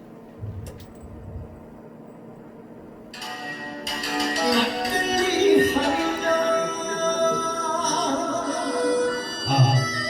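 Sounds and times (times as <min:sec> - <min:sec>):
instrumental backing track: 0:03.2 - 0:10.0.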